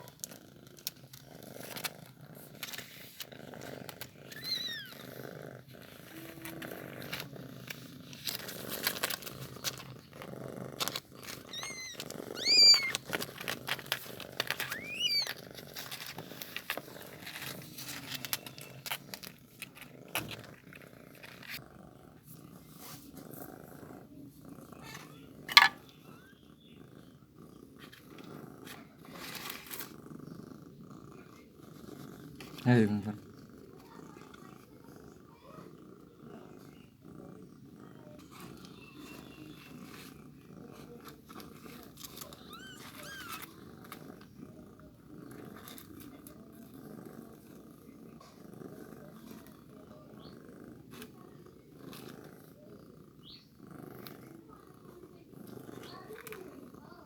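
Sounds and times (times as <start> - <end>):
cat purring: 0.0 - 57.0
kitten mews: 11.5 - 13.0, 14.7 - 15.4.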